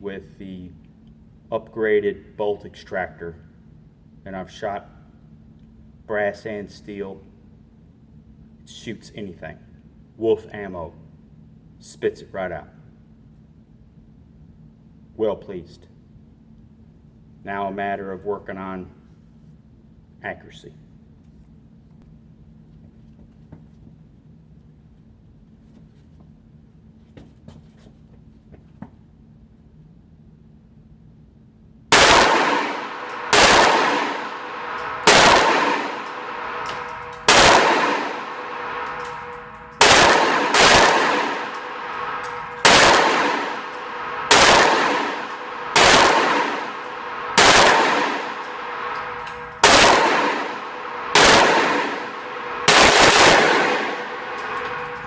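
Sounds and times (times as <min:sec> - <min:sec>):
pistol shots with ringing echo: 0:31.9 - 0:55.0.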